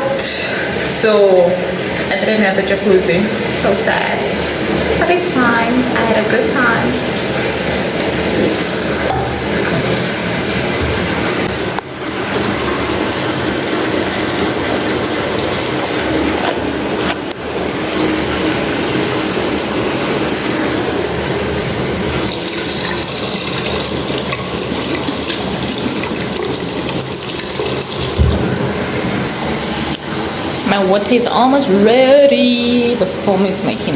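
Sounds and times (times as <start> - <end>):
bathtub tap gushing: 22.1 - 29.1.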